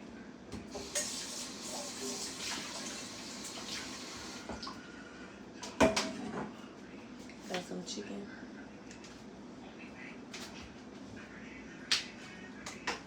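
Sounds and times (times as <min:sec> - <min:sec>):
water running from tap: 0:00.7 - 0:04.8.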